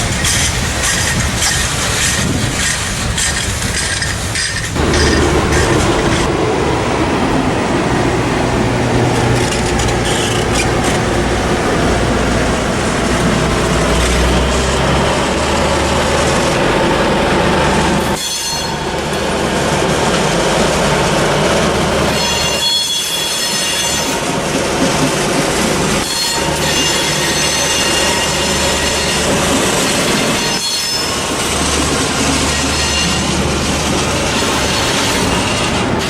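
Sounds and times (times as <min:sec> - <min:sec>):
wheel squeal: 0:00.0 - 0:06.3, 0:09.4 - 0:11.1, 0:18.0 - 0:18.9, 0:22.1 - 0:24.2, 0:26.0 - 0:36.0
locomotive engine rumble: 0:00.0 - 0:22.6, 0:23.8 - 0:36.0
wheels rolling on rail: 0:00.0 - 0:36.0.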